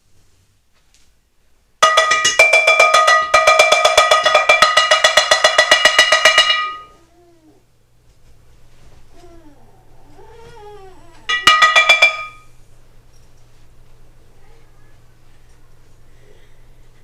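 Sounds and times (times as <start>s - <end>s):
rapid metallic clanging: 1.8s - 6.9s, 11.3s - 12.5s
faint whimpering voice: 6.9s - 7.7s, 9.1s - 11.3s.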